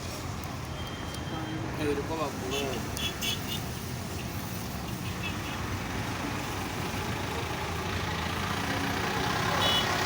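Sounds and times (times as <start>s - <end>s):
vehicle engine idling: 5.8s - 10.0s.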